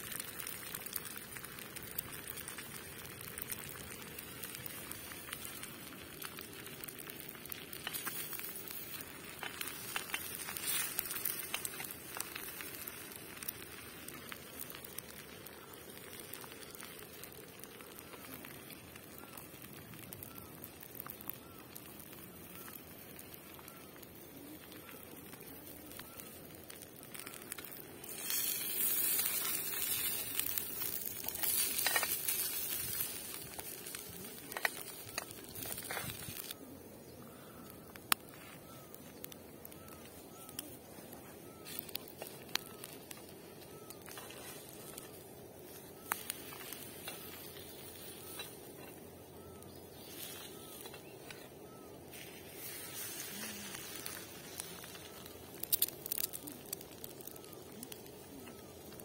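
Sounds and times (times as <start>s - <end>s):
food sizzling on griddle pan: 0.0s - 23.7s, 24.4s - 36.6s, 41.6s - 48.8s, 49.5s - 59.0s.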